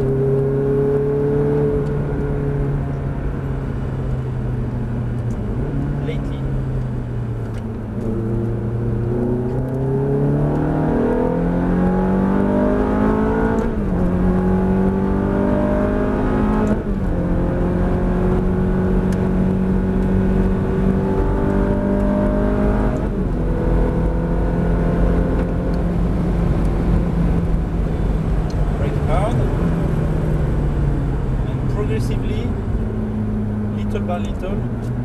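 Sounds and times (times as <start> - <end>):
car engine accelerating: 0.0 - 35.0.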